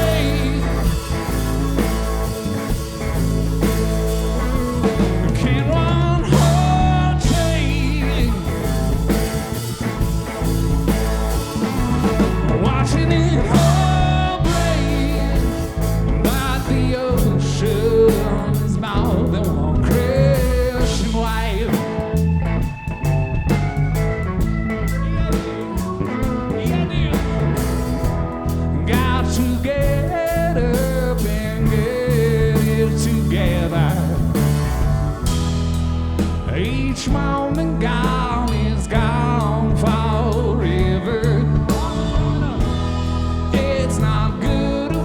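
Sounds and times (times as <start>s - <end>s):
bass line: 0.0s - 45.0s
drums: 0.0s - 45.0s
lead guitar bending notes: 0.0s - 45.0s.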